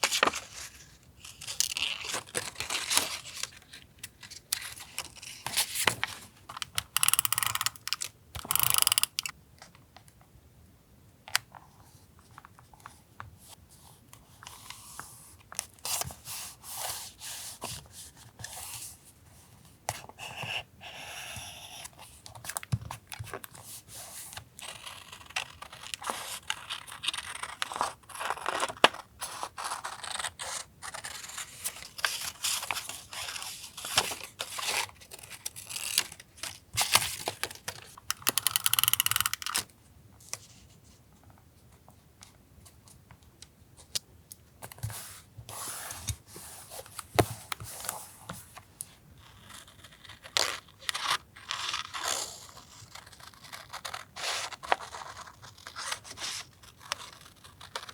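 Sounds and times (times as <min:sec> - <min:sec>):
paper rustling and scraping: 0:00.0 - 0:06.3
small clicks: 0:06.6 - 0:09.3, 0:38.1 - 0:39.6.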